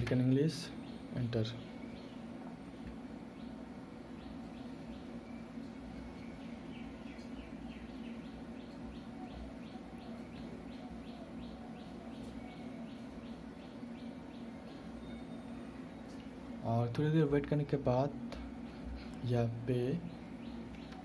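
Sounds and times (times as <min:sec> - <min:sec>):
steady low hum: 0:00.0 - 0:21.0
bird chirping rapidly: 0:03.3 - 0:15.8, 0:19.8 - 0:21.0.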